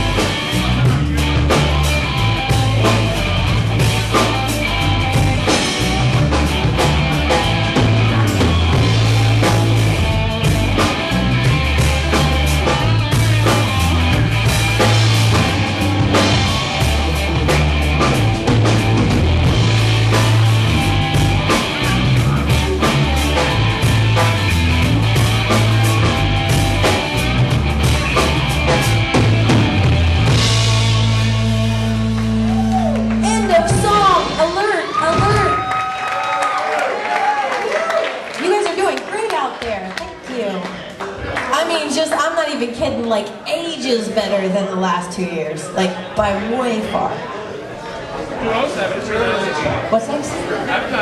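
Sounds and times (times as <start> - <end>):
electric guitar: 0.0 - 36.3
bass guitar: 0.0 - 39.8
drum kit: 0.0 - 39.8.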